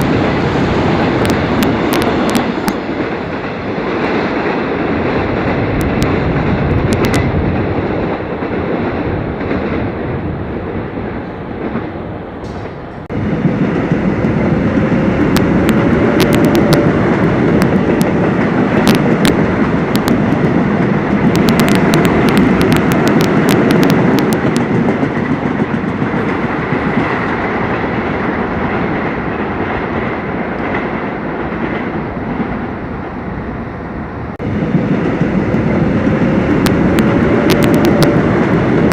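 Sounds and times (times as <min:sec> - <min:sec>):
subway train rumbling on rails: 0:00.0 - 0:38.9
sharp clicks and rattles: 0:15.2 - 0:20.6, 0:21.2 - 0:27.0, 0:36.4 - 0:38.9.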